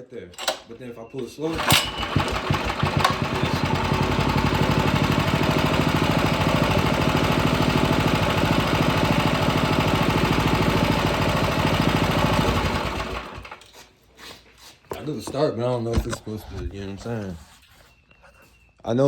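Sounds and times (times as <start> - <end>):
small engine idling: 1.5 - 13.6.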